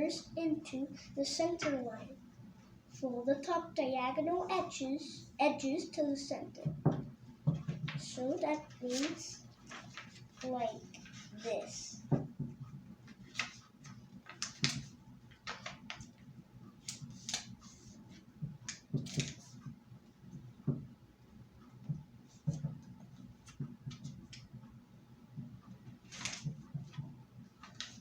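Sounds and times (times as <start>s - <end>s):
paper being folded: 8.1s - 11.5s, 13.1s - 16.1s, 16.8s - 19.6s, 26.0s - 27.0s, 27.6s - 28.0s.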